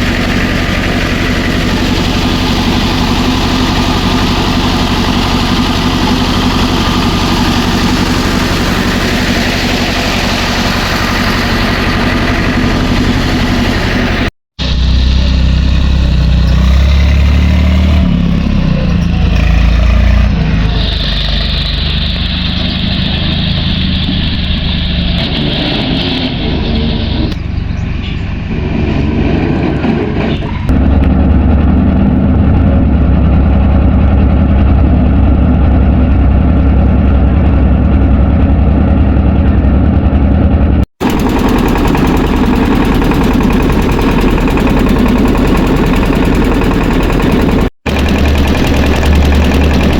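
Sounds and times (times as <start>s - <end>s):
tractor engine running hard: 0.0s - 49.9s.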